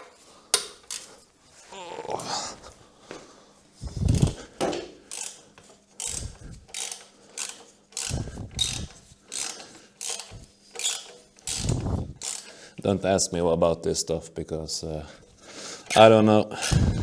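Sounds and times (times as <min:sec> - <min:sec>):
ratchet wrench clicking: 0:05.1 - 0:05.4, 0:06.0 - 0:12.6.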